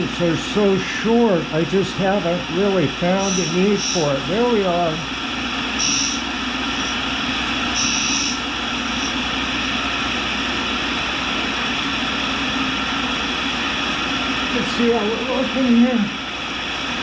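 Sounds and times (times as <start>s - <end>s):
high-pitched grinding rasps: 3.2s - 9.3s
grinder running: 3.2s - 10.4s.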